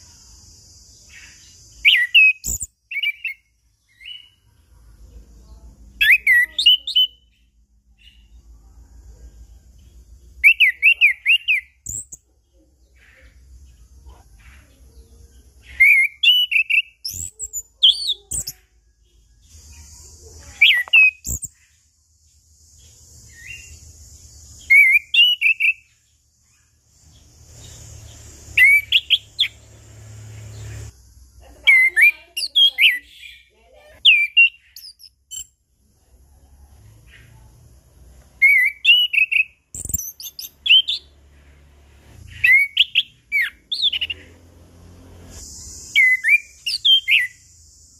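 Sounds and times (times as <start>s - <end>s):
thrush singing whistled notes: 0.9s - 4.4s, 6.0s - 8.4s, 10.4s - 12.2s, 15.6s - 18.8s, 19.4s - 21.6s, 22.8s - 31.0s, 31.6s - 35.6s, 38.4s - 41.2s, 42.0s - 47.9s.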